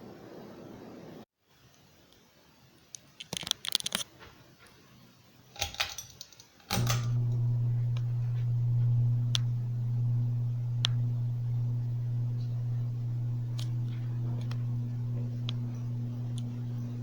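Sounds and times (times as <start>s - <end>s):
fan switch clicks and rattles: 5.6s - 17.0s
ceiling fan motor humming: 6.7s - 17.0s.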